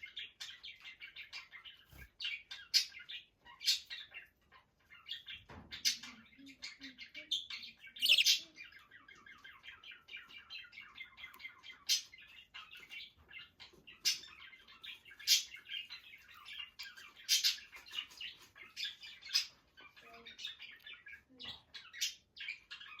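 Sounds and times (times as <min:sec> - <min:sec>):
pet bird twittering: 0:07.6 - 0:08.5
sharp bird calls: 0:07.8 - 0:08.6.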